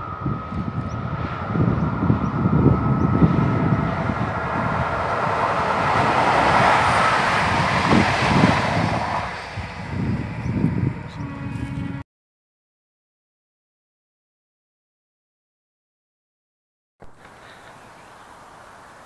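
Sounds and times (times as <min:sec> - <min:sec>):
passenger train passing: 0:00.0 - 0:12.0.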